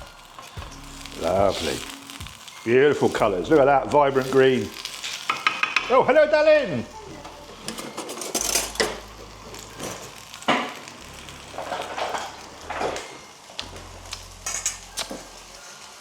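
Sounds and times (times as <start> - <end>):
faint stir-fry sizzle: 0.0 - 16.0
utensils clinking on kitchenware: 7.6 - 9.0.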